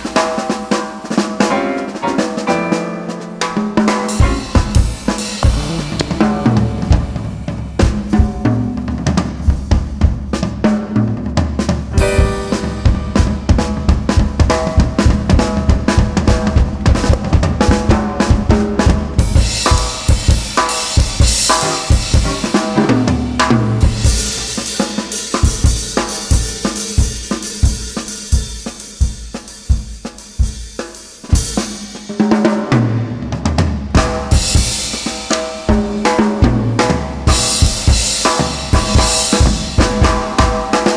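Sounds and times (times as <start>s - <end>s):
drum kit: 0.0s - 40.9s
jazz combo playing: 1.0s - 10.3s, 11.9s - 26.8s, 34.4s - 40.9s
cymbals ringing: 4.1s - 9.5s.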